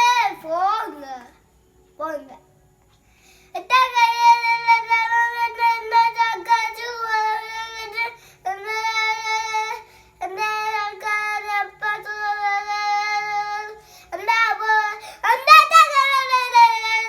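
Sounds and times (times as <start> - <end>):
child singing: 0.0 - 1.4, 3.6 - 17.0
short breaths: 3.0 - 3.6, 9.8 - 10.2, 13.8 - 14.2.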